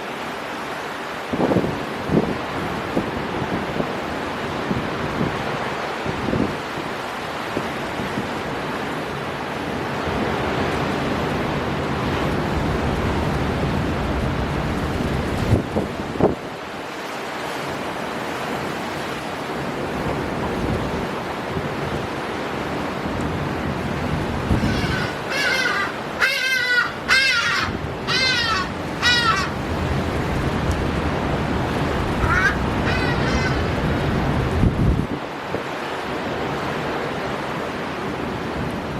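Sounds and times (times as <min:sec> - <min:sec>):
storm wind blowing: 0:01.3 - 0:16.8, 0:17.7 - 0:38.9
surf breaking: 0:07.1 - 0:37.9
bird harsh calls: 0:24.5 - 0:29.6, 0:32.2 - 0:33.8.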